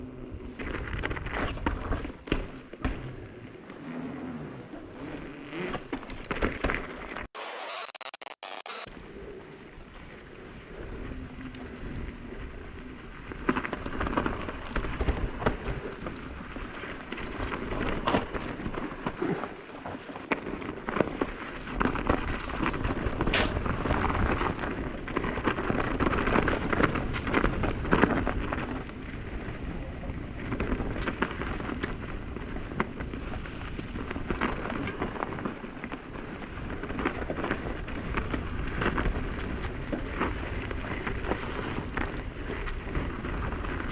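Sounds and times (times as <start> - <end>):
bike tyres crunching on dirt: 0.2 - 3.7, 11.6 - 43.9
bike rattling and knocking: 21.9 - 28.7.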